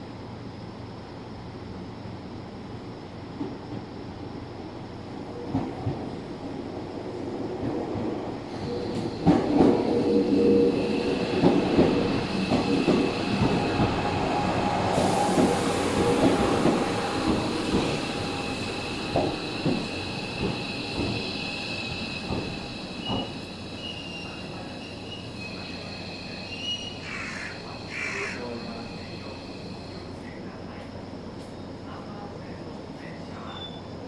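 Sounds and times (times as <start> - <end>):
high steady wheel squeal: 8.5 - 30.4
electric train running: 8.7 - 26.2.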